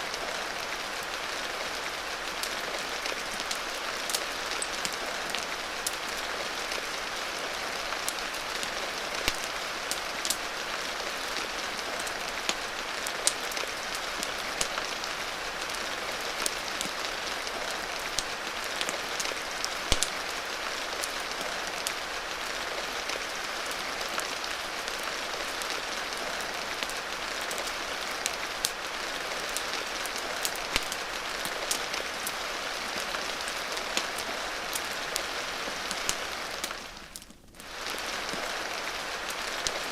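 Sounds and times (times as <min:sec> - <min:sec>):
crackling wood fire: 0:00.0 - 0:39.9
rain hiss: 0:00.0 - 0:39.9.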